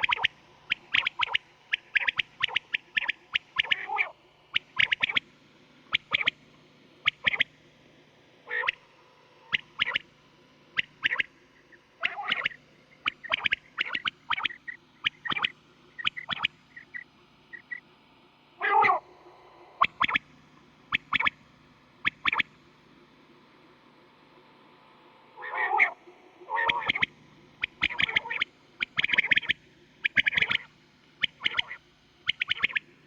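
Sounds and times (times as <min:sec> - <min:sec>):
quail calling: 0:00.0 - 0:05.2, 0:08.5 - 0:08.8, 0:10.8 - 0:11.3, 0:12.0 - 0:17.8, 0:18.6 - 0:19.1, 0:25.4 - 0:32.9
faint low hum: 0:00.0 - 0:33.0.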